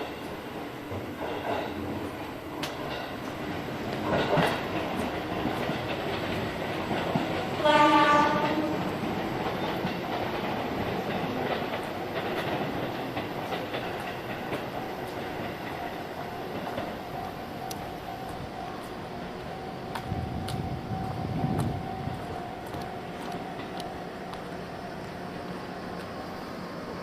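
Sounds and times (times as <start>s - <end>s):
electric train wheel and rail noise: 0.0s - 27.0s
train horn blast: 7.6s - 8.8s.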